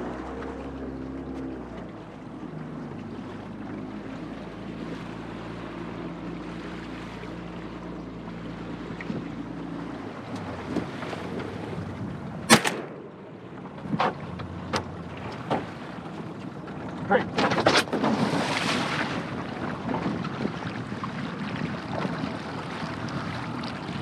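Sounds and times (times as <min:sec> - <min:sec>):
boat motor running: 0:00.0 - 0:24.0
loud sharp bang: 0:12.5 - 0:13.2
wind noise: 0:17.9 - 0:24.0.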